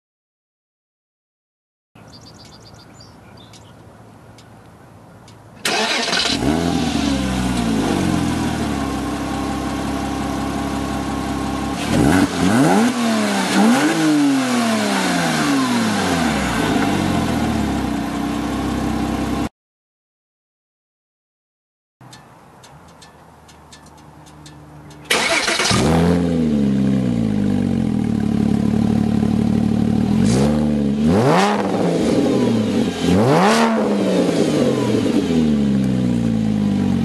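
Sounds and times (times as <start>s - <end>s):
engine throttle blips: 5.2s - 17.9s, 22.0s - 37.0s
sports car engine starting and idling: 5.2s - 19.5s, 22.1s - 37.0s.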